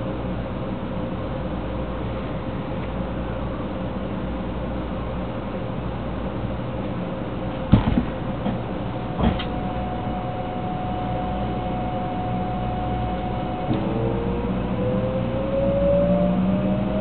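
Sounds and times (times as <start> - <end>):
train motor whine: 7.4 - 17.0
train clunk: 7.5 - 14.1.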